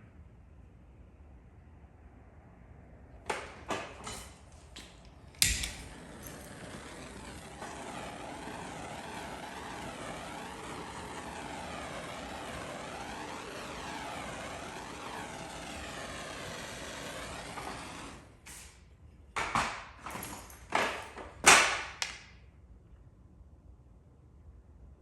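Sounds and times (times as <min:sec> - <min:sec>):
short bursts of hiss: 0:05.6 - 0:18.9
steady wavering rushing noise: 0:05.8 - 0:18.2.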